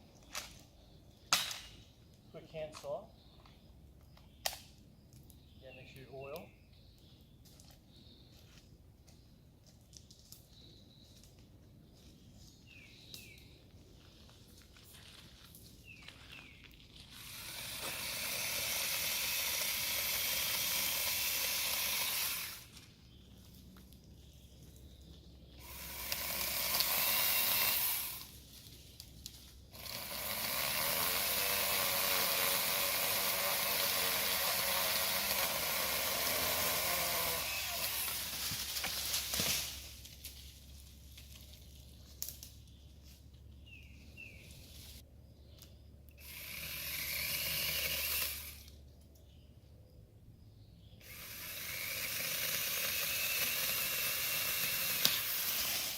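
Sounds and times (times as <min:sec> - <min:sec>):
mini chainsaw cutting branches: 0:17.0 - 0:22.8, 0:25.6 - 0:28.4, 0:29.6 - 0:40.1, 0:46.2 - 0:48.8, 0:51.0 - 0:55.9.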